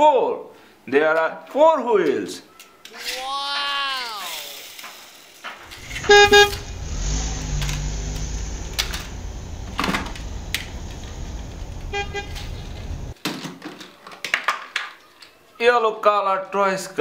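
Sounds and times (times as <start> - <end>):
low engine rumble: 5.6 - 13.2
car horn toot: 5.7 - 7.4, 8.6 - 13.1
clicks of plastic toy cars: 7.4 - 11.1, 13.2 - 15.4.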